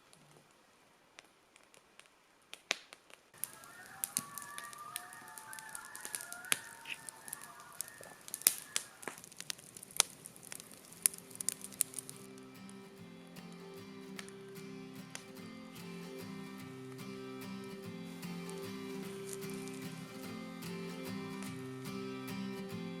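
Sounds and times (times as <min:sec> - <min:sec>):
campfire crackling and popping: 0:01.1 - 0:23.0
geese honking: 0:03.4 - 0:09.2.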